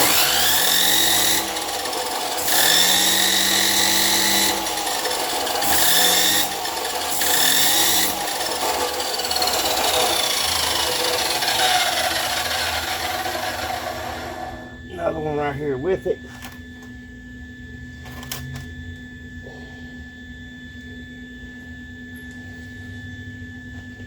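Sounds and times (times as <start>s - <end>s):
angle grinder grinding metal: 0.0s - 14.8s.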